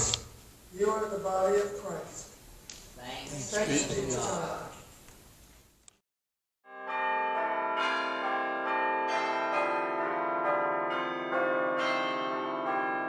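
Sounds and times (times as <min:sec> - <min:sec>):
bells ringing: 0:06.7 - 0:13.0.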